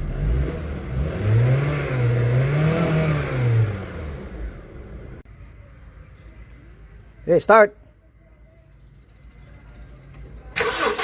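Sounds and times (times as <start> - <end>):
vehicle engine revving: 0.0 - 5.2.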